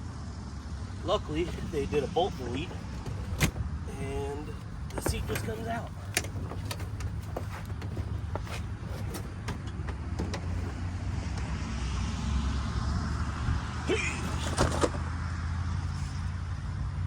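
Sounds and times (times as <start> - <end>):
car seat rattling and knocking: 1.3 - 11.8
loud clunks: 2.5 - 3.7, 4.5 - 11.6.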